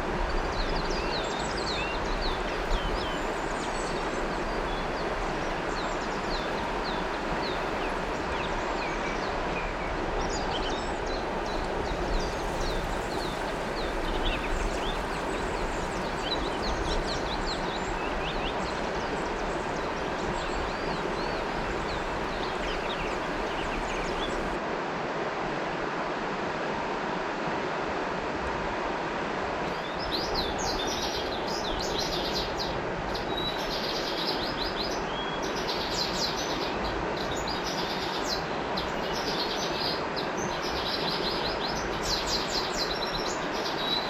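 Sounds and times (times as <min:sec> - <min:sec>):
river water flowing: 0:00.0 - 0:44.0
birds chirping: 0:05.8 - 0:24.6.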